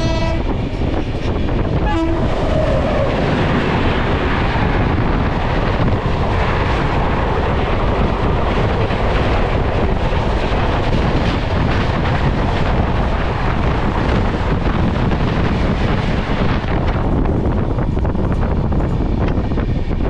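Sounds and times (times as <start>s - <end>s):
train wheels rumbling on track: 0.0s - 20.0s
wind buffeting microphone: 0.0s - 20.0s.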